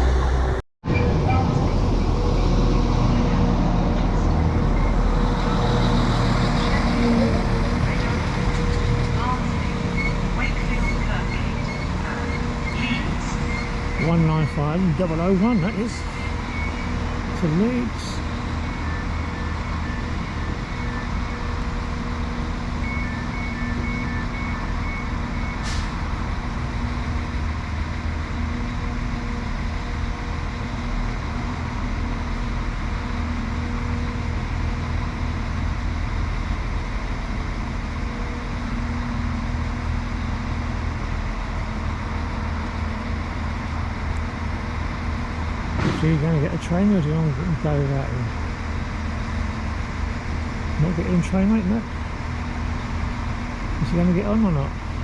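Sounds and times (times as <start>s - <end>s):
diesel train idling hum: 0.0s - 55.0s.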